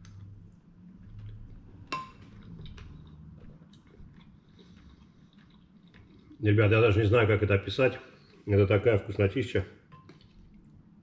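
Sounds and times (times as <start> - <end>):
person chewing: 0.0 - 6.4.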